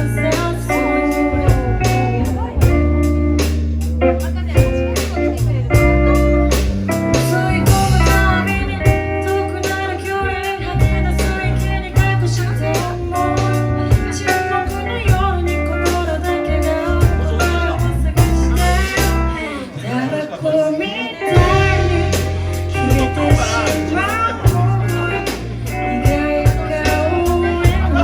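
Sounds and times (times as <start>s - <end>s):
live band playing: 0.0s - 28.0s
person singing: 0.0s - 28.0s.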